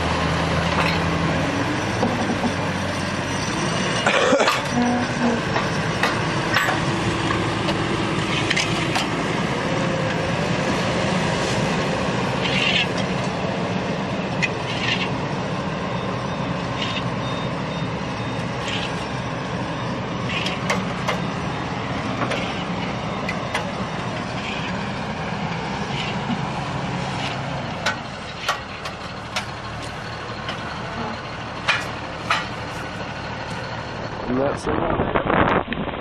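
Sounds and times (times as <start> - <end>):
heavy vehicle engine running: 0.0 - 36.0
sharp clanks and knocks: 5.5 - 9.1, 20.3 - 21.3, 22.2 - 22.6, 27.2 - 33.6.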